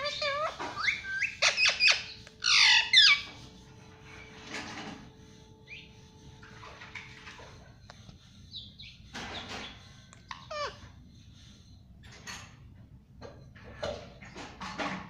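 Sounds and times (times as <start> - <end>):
parrot squawking: 0.0 - 3.4, 10.2 - 10.9.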